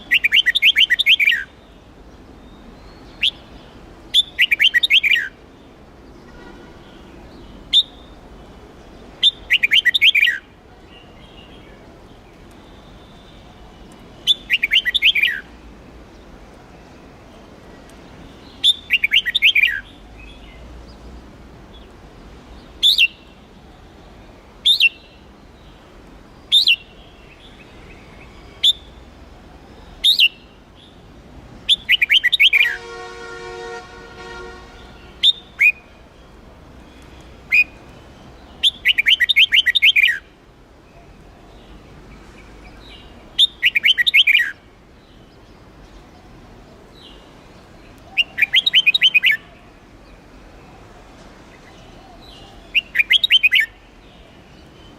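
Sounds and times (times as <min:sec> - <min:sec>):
bird singing whistled notes: 0:00.0 - 0:01.8, 0:02.4 - 0:05.4, 0:07.4 - 0:08.2, 0:09.2 - 0:11.8, 0:14.2 - 0:15.5, 0:18.3 - 0:20.6, 0:22.8 - 0:23.4, 0:24.6 - 0:25.2, 0:26.5 - 0:29.0, 0:30.0 - 0:31.0, 0:31.7 - 0:33.2, 0:34.3 - 0:36.0, 0:37.4 - 0:40.3, 0:42.7 - 0:45.4, 0:48.1 - 0:49.6, 0:52.1 - 0:54.9
steady horn-like tone: 0:32.7 - 0:35.2.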